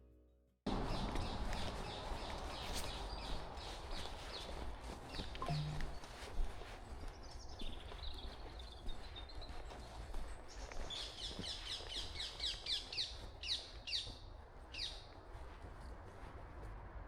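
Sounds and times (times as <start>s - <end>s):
songbird singing high notes: 5.4s - 6.0s.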